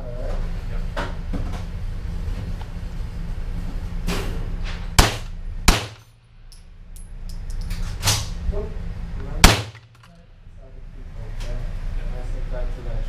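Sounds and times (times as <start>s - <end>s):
rifle shots with echo: 5.0s - 6.1s, 9.4s - 10.0s.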